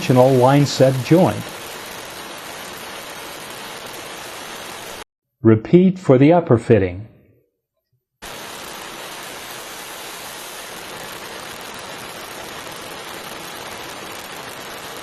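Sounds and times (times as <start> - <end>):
brazing torch hissing: 0.0 - 5.0, 8.2 - 15.0.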